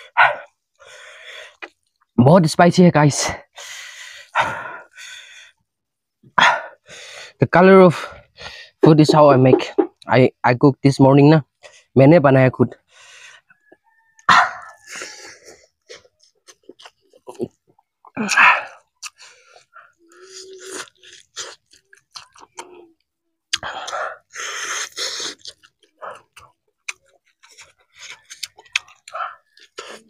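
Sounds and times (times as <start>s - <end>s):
wet chewing and lip-smacking: 1.4s - 2.1s, 13.5s - 30.0s
rushes of breath: 3.5s - 5.6s.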